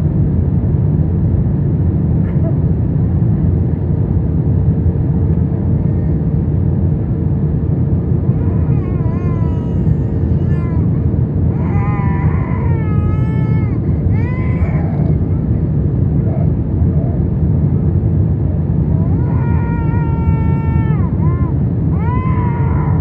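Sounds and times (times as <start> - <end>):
aircraft cabin rumble: 0.0 - 23.0
baby crying: 8.2 - 17.2, 18.9 - 23.0.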